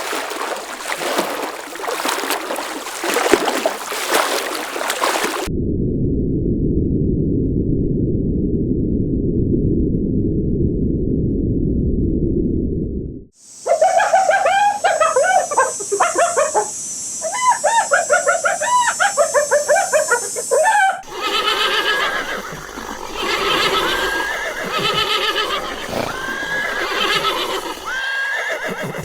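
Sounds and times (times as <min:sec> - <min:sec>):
short rising animal calls: 0:13.6 - 0:29.0
wavering animal calls: 0:13.6 - 0:29.0.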